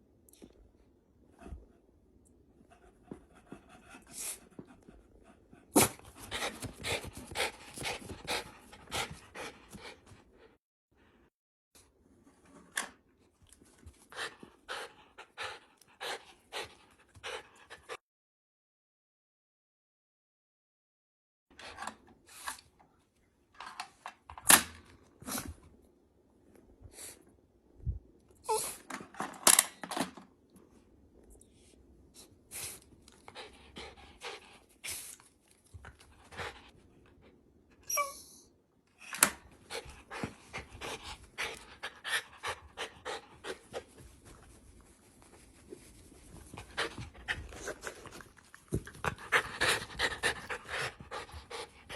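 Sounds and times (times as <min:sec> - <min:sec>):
dog panting: 0:33.2 - 0:34.8, 0:39.6 - 0:44.3, 0:46.4 - 0:51.9.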